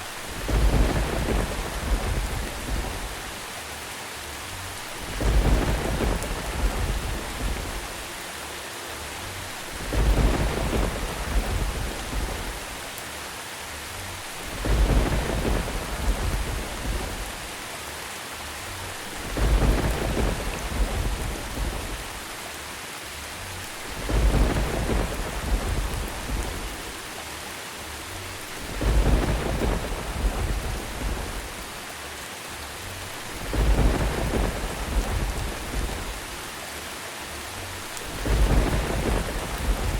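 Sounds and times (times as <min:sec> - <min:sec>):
low thunder rumble: 0:00.0 - 0:03.4, 0:04.8 - 0:08.2, 0:09.5 - 0:12.8, 0:14.2 - 0:17.6, 0:18.8 - 0:22.3, 0:23.7 - 0:27.1, 0:28.3 - 0:31.9, 0:33.0 - 0:36.5, 0:37.8 - 0:39.9
steady rain: 0:00.0 - 0:39.9.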